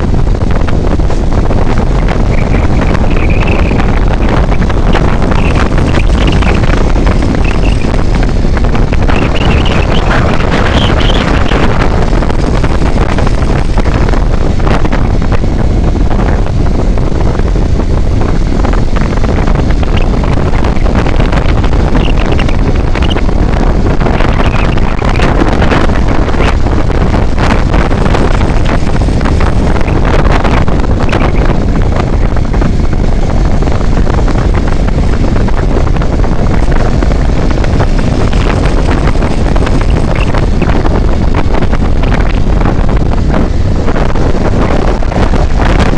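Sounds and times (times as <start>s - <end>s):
vehicle road and engine noise: 0.0s - 45.9s
wind buffeting microphone: 0.0s - 45.9s.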